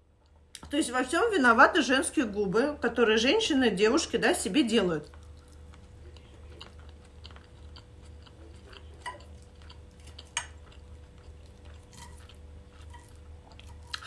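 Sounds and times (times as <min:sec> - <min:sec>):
low steady hum: 0:00.0 - 0:14.0
close-up chewing: 0:04.8 - 0:14.0.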